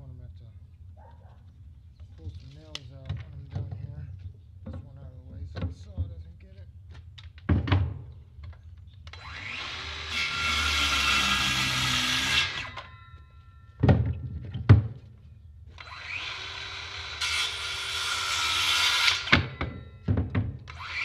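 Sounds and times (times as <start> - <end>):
electric saw cutting wood: 9.1 - 12.9, 15.8 - 19.5, 20.7 - 21.0.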